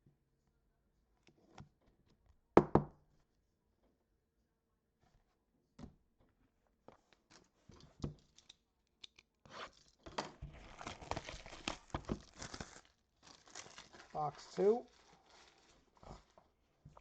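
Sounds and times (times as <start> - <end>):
plastic wrapping tearing and crinkling: 9.5 - 16.4.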